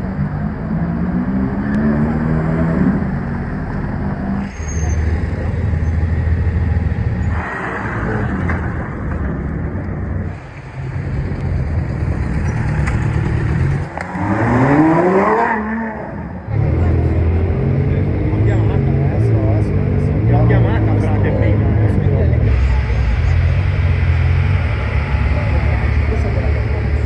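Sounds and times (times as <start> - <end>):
car engine revving: 0.0 - 27.0
car engines rumbling: 0.0 - 27.0.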